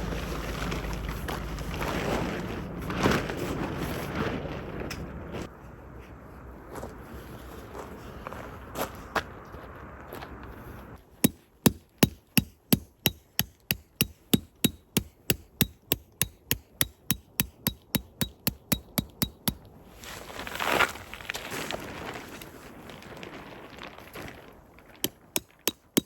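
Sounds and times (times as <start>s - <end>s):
hammer blows with metallic ring: 11.3s - 19.7s.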